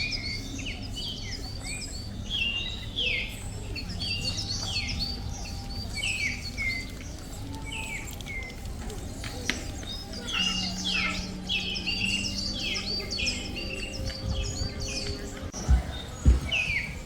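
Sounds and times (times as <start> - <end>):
birds chirping and singing: 0.0 - 17.0
steady low rumble: 12.8 - 17.0.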